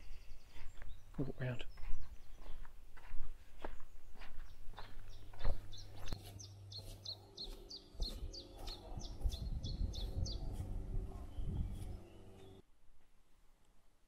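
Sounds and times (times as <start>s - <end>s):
small bird chirping fast: 4.1s - 10.7s
low rumble: 9.0s - 12.6s.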